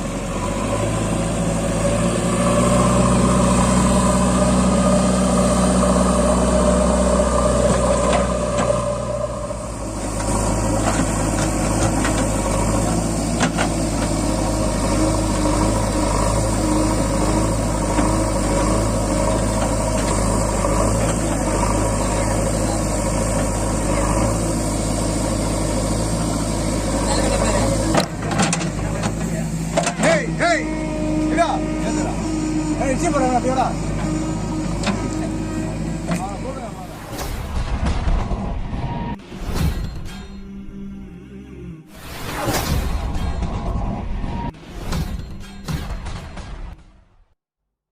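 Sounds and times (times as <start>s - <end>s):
diesel tractor engine running: 0.0s - 40.6s.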